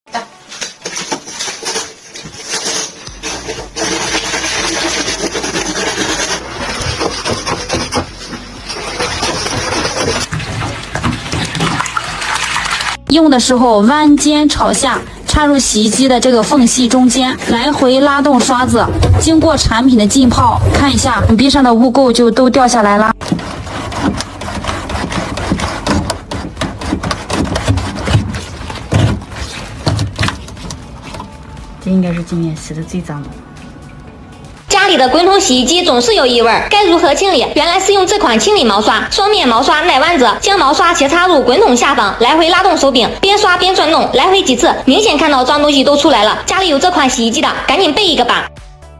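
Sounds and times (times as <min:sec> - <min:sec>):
brush scrubbing: 0:00.4 - 0:13.0, 0:14.6 - 0:21.4, 0:23.2 - 0:31.5.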